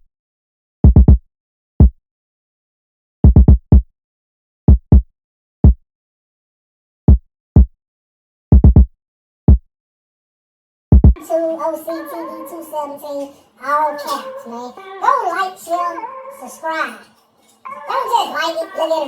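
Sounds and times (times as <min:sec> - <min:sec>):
electronic kick drum beat: 0:00.9 - 0:01.2, 0:03.3 - 0:03.9, 0:04.7 - 0:05.8, 0:08.5 - 0:08.9, 0:10.9 - 0:11.2.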